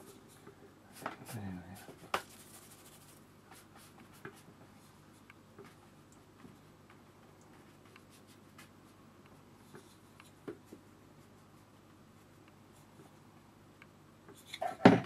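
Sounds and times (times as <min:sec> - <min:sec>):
paintbrush scratching on paper: 0:00.0 - 0:06.0, 0:07.5 - 0:09.0, 0:09.6 - 0:13.2.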